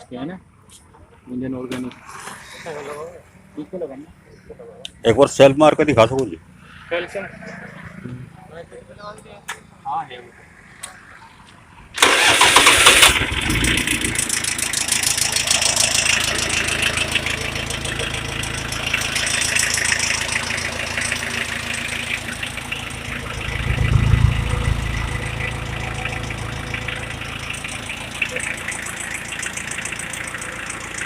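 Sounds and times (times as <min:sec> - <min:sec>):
starter motor cranking: 0:12.0 - 0:22.8
diesel tractor engine idling: 0:12.0 - 0:31.0.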